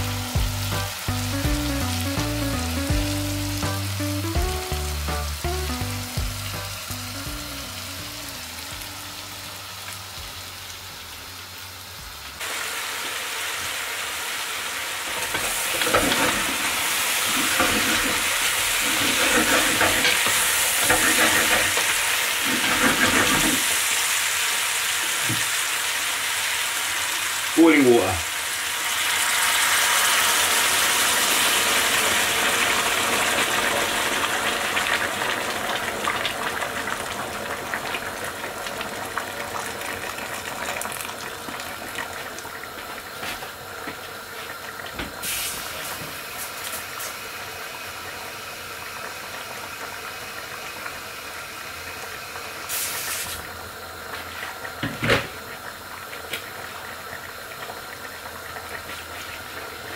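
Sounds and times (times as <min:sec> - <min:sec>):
boiling water hissing in hot pan: 0:00.0 - 0:59.9.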